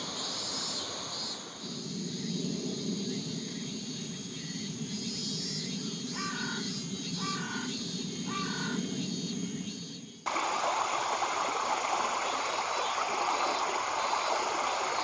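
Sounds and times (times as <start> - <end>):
insects chirping: 0.0 - 15.0
bird calling: 6.2 - 8.9
low rushing noise: 10.3 - 15.0.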